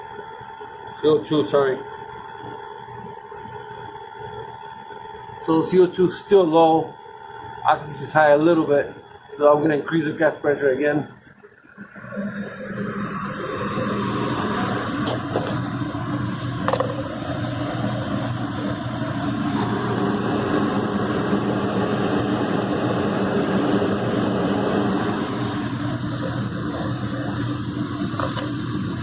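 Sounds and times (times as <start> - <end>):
furnace motor hum: 0.0 - 29.0
rush of burner flame: 12.3 - 29.0.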